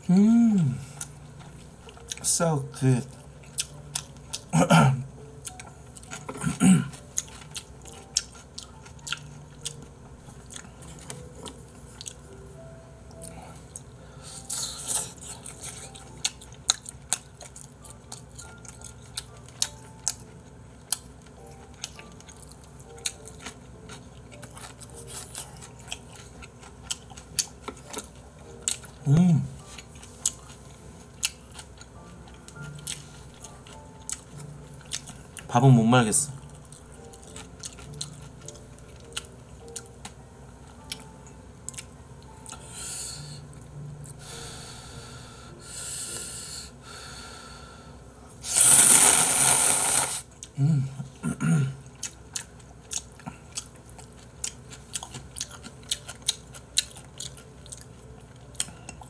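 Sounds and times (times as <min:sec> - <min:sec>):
person chewing: 0:00.1 - 0:02.3, 0:03.1 - 0:12.4, 0:13.1 - 0:35.5, 0:36.3 - 0:46.3, 0:48.4 - 0:51.2, 0:51.8 - 0:59.0.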